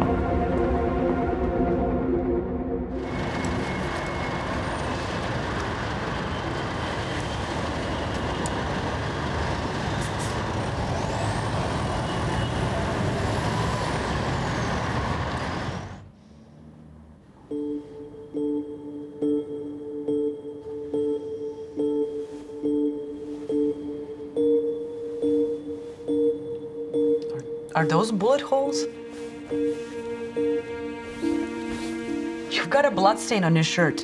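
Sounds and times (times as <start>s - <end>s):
soft musical tones: 0.0s - 5.9s, 16.2s - 34.0s
loud steady rushing noise: 2.9s - 16.0s.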